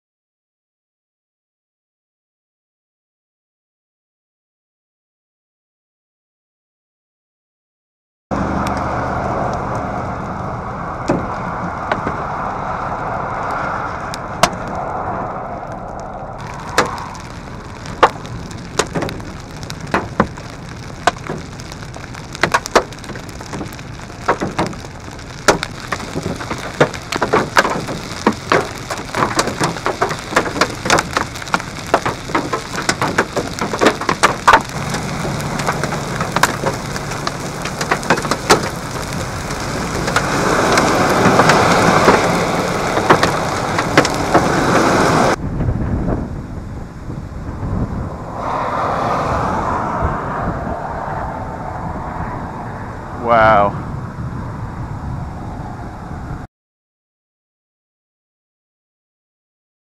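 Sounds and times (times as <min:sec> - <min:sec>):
heavy rain hissing on vehicle: 0:08.4 - 0:14.9, 0:15.6 - 0:45.4, 0:53.2 - 0:53.7
hail hitting vehicle: 0:11.0 - 0:12.5, 0:16.4 - 0:45.4.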